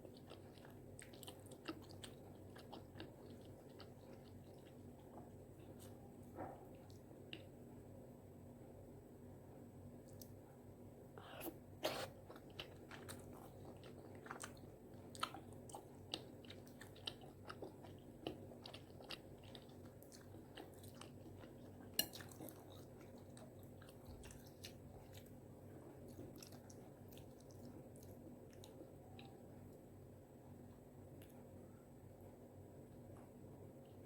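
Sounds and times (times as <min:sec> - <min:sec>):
close chewing with mouth clicks: 0:00.0 - 0:07.6, 0:11.2 - 0:29.4.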